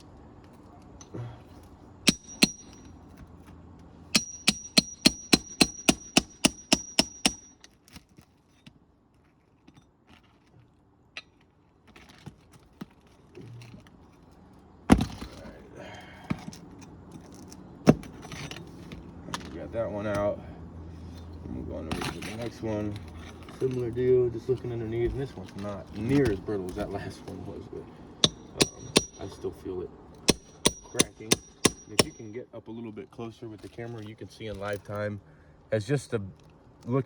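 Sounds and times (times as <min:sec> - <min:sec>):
hammer striking metal tool: 0:02.1 - 0:02.9, 0:04.1 - 0:07.6, 0:28.2 - 0:29.4, 0:30.3 - 0:32.3.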